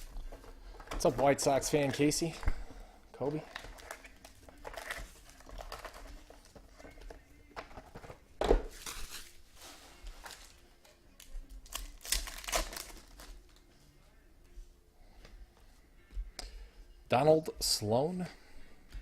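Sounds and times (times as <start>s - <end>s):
wrappers crinkling and tearing: 3.3s - 6.5s, 8.7s - 10.6s, 11.2s - 13.6s.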